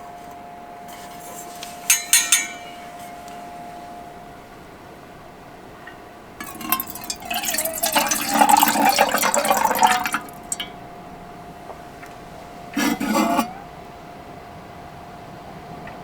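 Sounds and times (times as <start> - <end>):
faint steady hum: 0.0 - 16.0
liquid pouring into container: 6.4 - 10.8.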